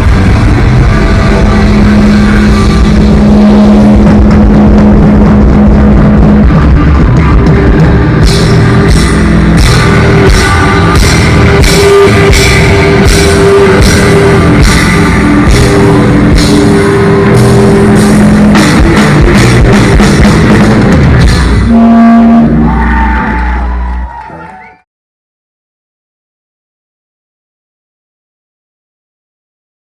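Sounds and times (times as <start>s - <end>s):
drums and cymbals: 0.0s - 22.4s
distorted electric guitar: 0.0s - 24.8s.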